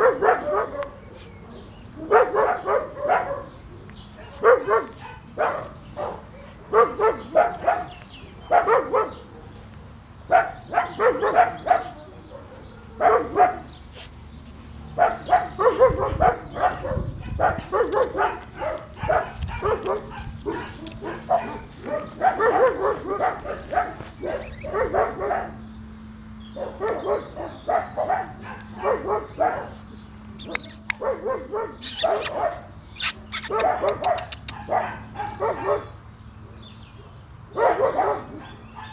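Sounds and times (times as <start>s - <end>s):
puppy yapping: 4.2s - 9.2s, 10.3s - 14.1s, 15.0s - 25.6s, 26.6s - 35.9s.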